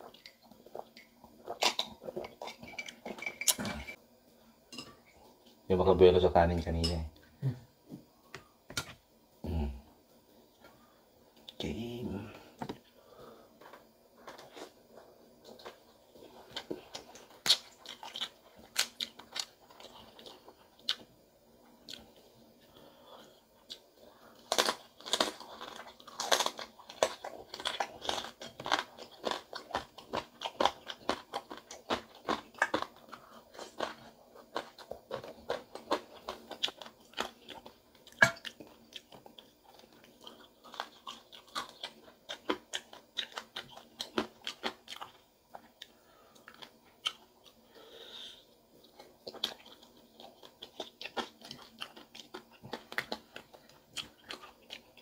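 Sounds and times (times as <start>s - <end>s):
crunchy chewing: 13.6s - 21.1s, 21.8s - 55.0s.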